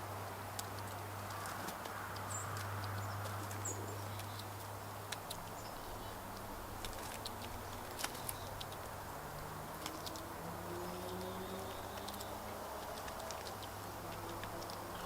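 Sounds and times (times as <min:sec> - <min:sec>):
sharp clicks and ticks: 0:06.3 - 0:10.3, 0:11.0 - 0:15.0.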